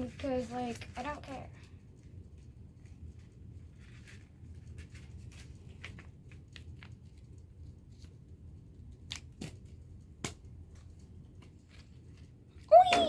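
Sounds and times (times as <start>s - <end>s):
paper crinkling and rustling: 2.8s - 7.2s.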